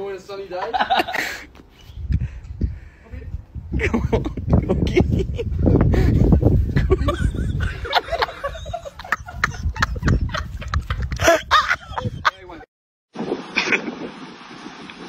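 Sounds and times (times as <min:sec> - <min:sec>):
laughter: 0:00.6 - 0:01.4, 0:03.8 - 0:12.6
wind noise on microphone: 0:00.9 - 0:12.6, 0:13.2 - 0:15.0.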